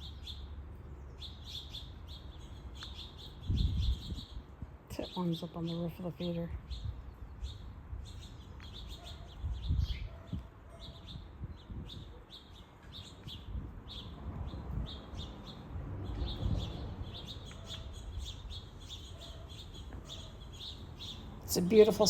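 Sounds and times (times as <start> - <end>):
songbirds chirping: 0.0 - 22.0
wind rumble on microphone: 3.2 - 5.0, 6.4 - 19.2.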